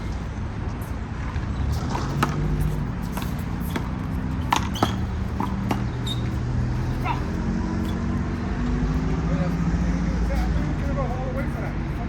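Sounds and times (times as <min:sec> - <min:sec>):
city traffic hum: 0:00.0 - 0:12.0
handball slapping and bouncing: 0:01.9 - 0:09.2.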